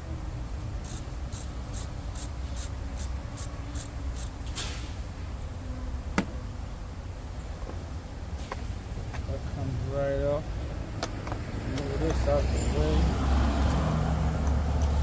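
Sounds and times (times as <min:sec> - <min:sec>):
ratchet strokes: 0:00.8 - 0:04.6.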